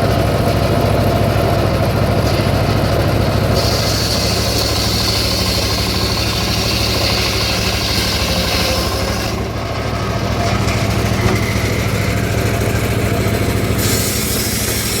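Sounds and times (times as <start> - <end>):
sawmill engine running: 0.0 - 15.0.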